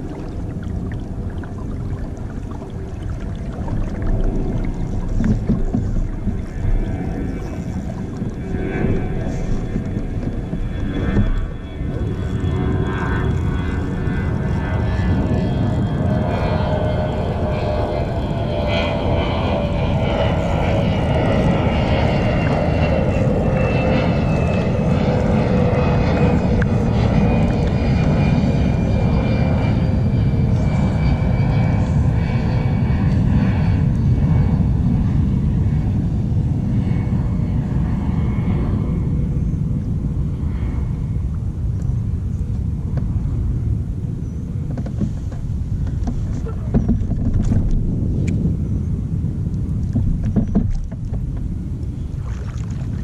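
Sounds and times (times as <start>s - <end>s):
water rushing on kayak: 0.0s - 31.0s, 41.1s - 53.0s
distant engine droning: 0.0s - 53.0s.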